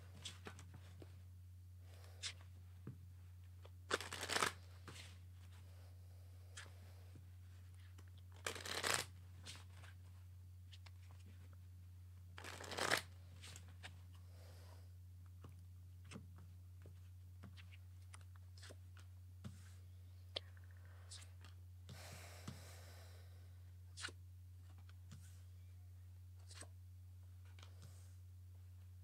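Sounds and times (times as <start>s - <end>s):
faint low hum: 0.0s - 29.0s
cards tapping and clicking: 3.9s - 4.6s
cards sliding rustle: 3.9s - 5.6s, 7.9s - 10.0s, 12.4s - 14.0s, 26.4s - 26.7s.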